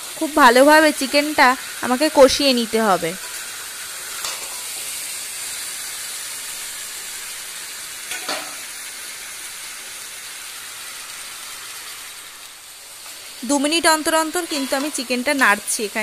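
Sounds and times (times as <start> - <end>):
chicken sizzling in a pan: 0.0 - 16.0
metal spatula scraping pan: 14.4 - 15.2.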